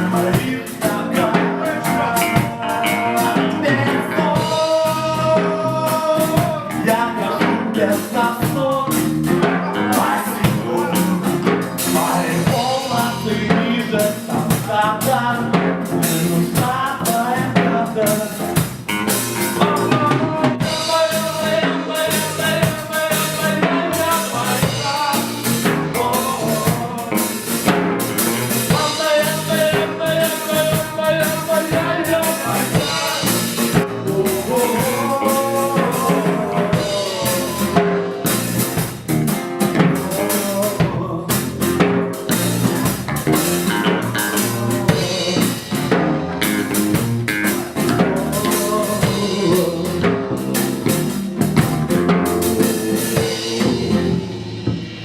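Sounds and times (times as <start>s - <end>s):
drum kit beat with rimshots: 0.0s - 55.0s
live band playing reggae-rock: 0.0s - 55.0s.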